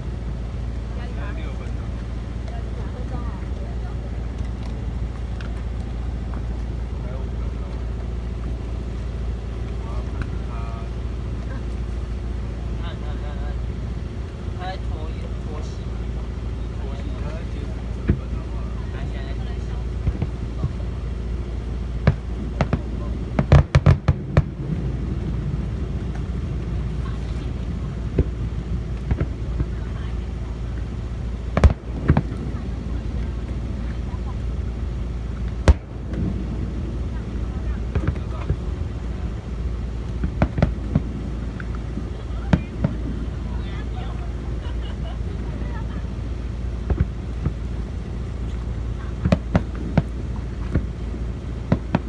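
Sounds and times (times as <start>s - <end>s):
low rumble: 0.0s - 52.0s
firework bangs: 15.3s - 52.0s.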